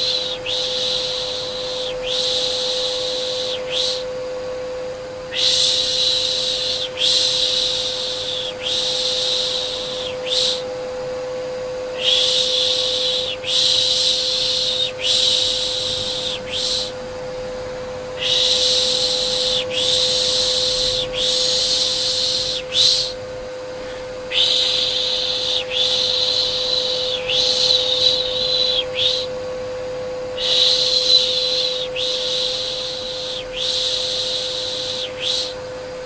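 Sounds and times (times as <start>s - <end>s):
vacuum cleaner running: 0.0s - 36.0s
person shushing: 11.9s - 17.0s, 18.2s - 23.2s, 23.8s - 29.3s, 30.4s - 35.5s.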